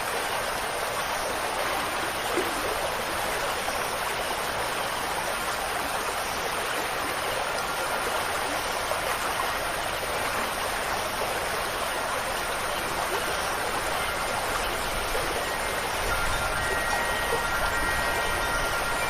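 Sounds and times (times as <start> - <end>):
stream rushing water: 0.0 - 19.0.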